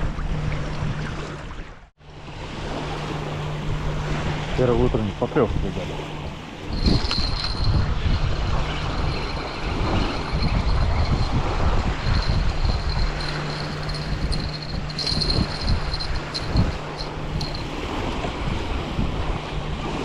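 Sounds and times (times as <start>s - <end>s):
waves washing: 0.0s - 20.0s
wind buffeting microphone: 5.2s - 20.0s
thin steady high tone: 8.6s - 17.8s.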